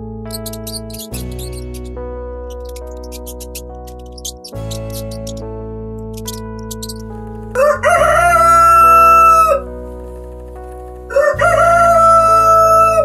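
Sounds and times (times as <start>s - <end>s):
background music: 0.0s - 13.0s
rooster crowing: 7.5s - 9.7s, 11.1s - 13.0s.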